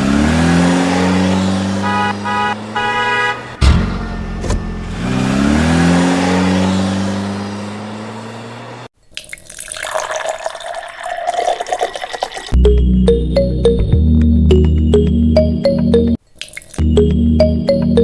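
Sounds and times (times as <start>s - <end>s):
engine revving: 0.0s - 8.9s
horn beeps: 1.8s - 4.8s.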